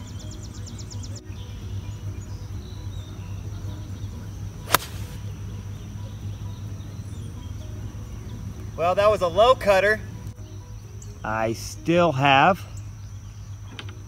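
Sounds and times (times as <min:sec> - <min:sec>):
golf club striking ball: 0:04.7 - 0:05.4.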